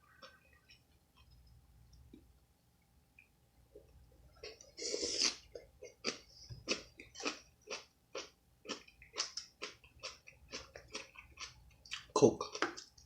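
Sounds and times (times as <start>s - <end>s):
person chewing food: 3.8s - 13.0s.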